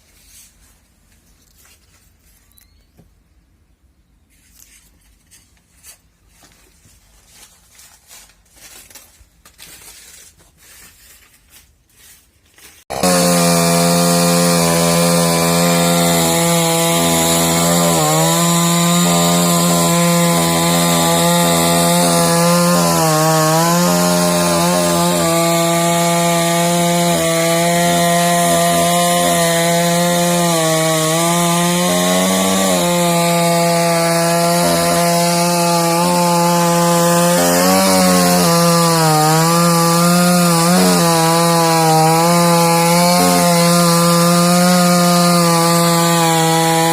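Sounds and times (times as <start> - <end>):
chainsaw cutting wood: 12.8 - 46.9.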